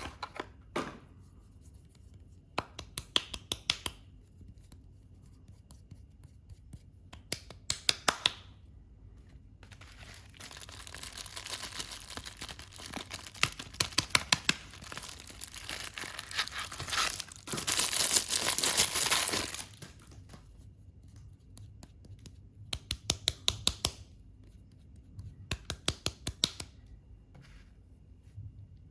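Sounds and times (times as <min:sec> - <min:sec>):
packaging crinkling: 0:09.6 - 0:20.2
packaging tearing: 0:09.7 - 0:20.0.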